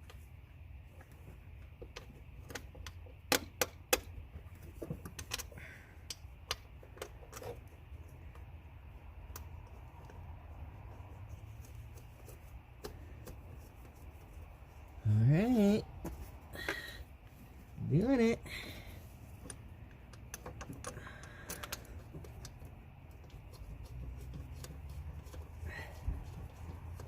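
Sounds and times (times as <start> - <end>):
low steady hum: 0.0 - 27.0
tools and parts clicking and knocking: 1.5 - 8.5, 19.4 - 25.5.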